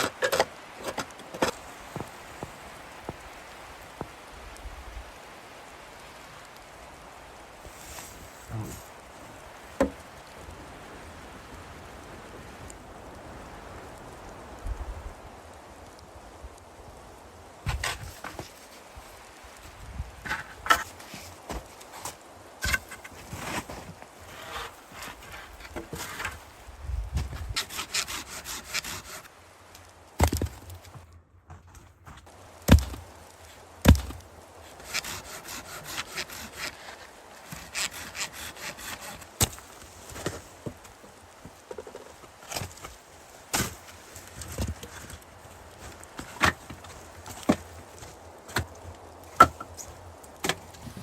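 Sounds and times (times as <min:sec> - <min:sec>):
hand saw rasping through wood: 0:27.6 - 0:29.3, 0:34.8 - 0:36.9, 0:37.5 - 0:39.6
wood knocking: 0:49.4 - 0:49.7.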